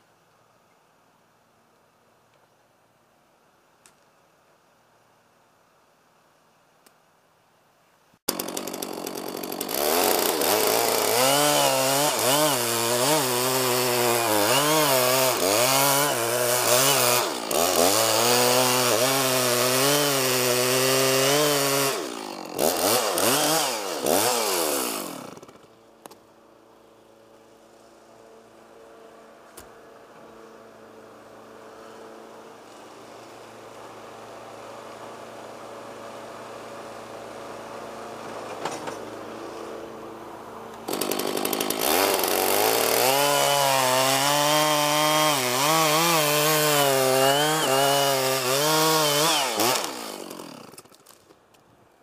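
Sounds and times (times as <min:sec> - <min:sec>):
chainsaw cutting wood: 0:08.3 - 0:26.2, 0:31.4 - 0:51.3.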